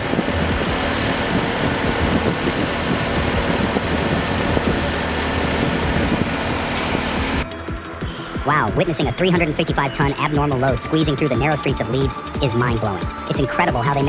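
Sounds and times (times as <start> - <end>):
heavy vehicle engine running: 0.0 - 10.4.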